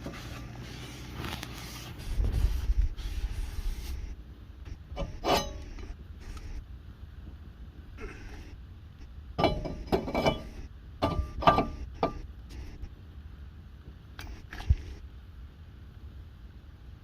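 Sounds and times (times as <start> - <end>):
metal tools clattering: 9.4 - 11.8.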